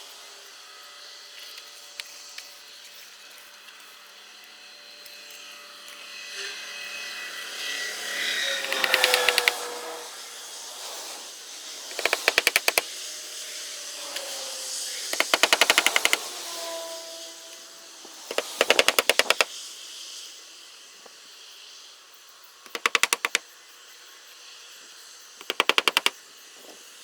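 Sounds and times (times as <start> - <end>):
rapid knock bursts: 8.6 - 9.6, 11.9 - 12.8, 15.2 - 16.2, 18.3 - 19.5, 22.7 - 23.4, 25.4 - 26.2.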